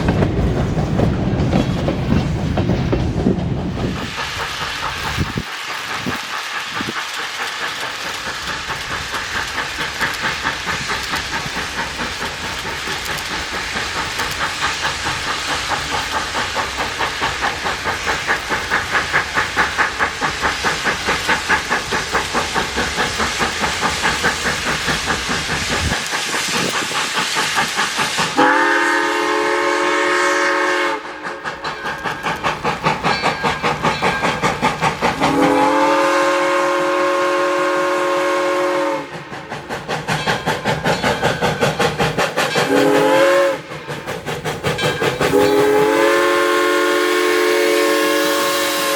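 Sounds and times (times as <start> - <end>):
steam locomotive chuffing: 0.0 - 48.9
steam whistle: 28.4 - 31.4, 35.2 - 39.2, 42.6 - 43.7, 45.3 - 48.9.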